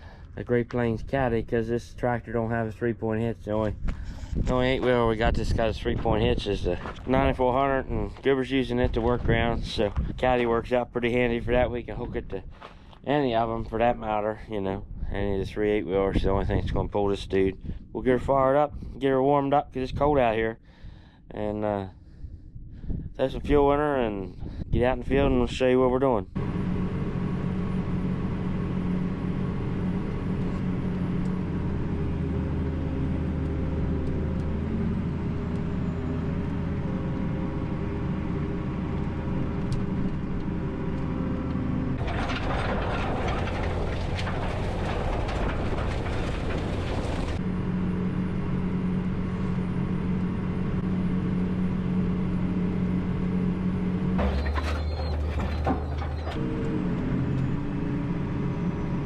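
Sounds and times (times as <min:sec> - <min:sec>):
tractor diesel engine running: 0:00.0 - 0:14.2, 0:26.3 - 0:59.0.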